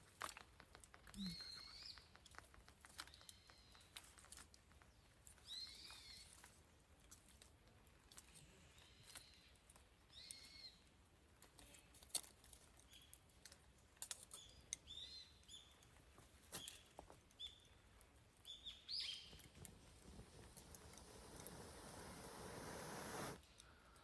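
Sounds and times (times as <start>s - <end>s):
campfire crackling and popping: 0.0s - 6.5s, 16.9s - 24.0s
bird chirping: 1.2s - 2.2s, 4.8s - 6.4s, 10.1s - 10.9s, 14.3s - 15.8s, 16.6s - 17.8s, 18.4s - 23.4s.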